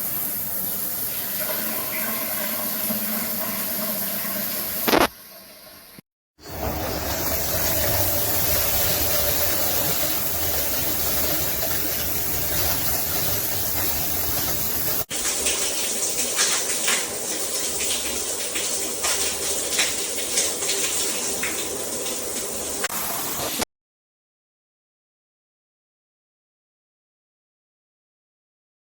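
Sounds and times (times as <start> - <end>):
shower water rushing: 0.0 - 23.7
water splashing: 6.5 - 23.6.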